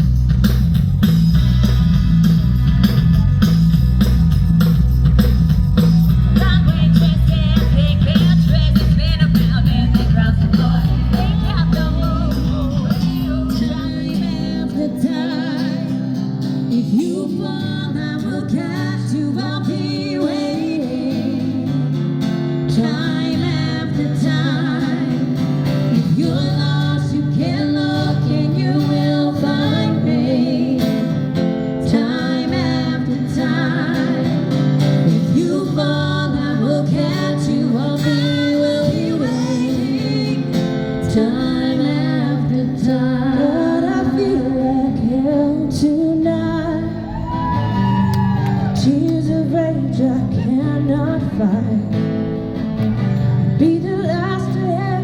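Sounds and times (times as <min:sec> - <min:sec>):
deep bass: 0:00.0 - 0:15.0, 0:43.9 - 0:51.4
live rock band playing: 0:00.0 - 0:15.0
woman singing: 0:06.2 - 0:52.2, 0:53.4 - 0:55.0.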